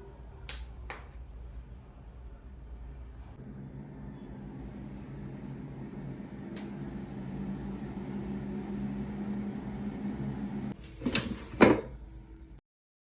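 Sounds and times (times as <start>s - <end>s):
air fryer fan hum: 3.4s - 12.6s.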